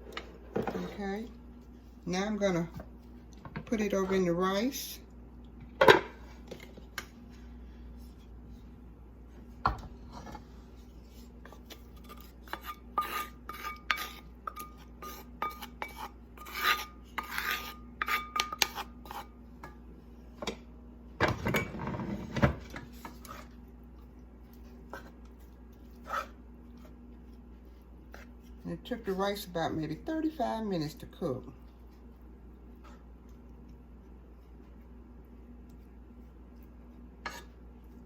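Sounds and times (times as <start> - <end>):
utensil scraping a pan: 10.1 - 19.4, 25.8 - 27.0, 37.2 - 37.6.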